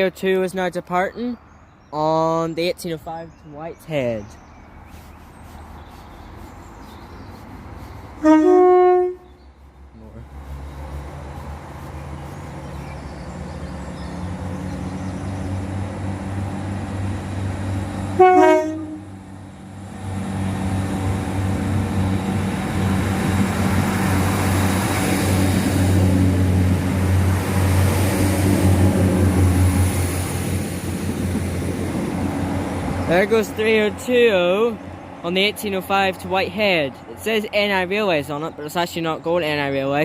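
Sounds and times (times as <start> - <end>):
train engines droning: 2.0 - 40.0
train horn blast: 8.2 - 9.4, 18.1 - 19.2.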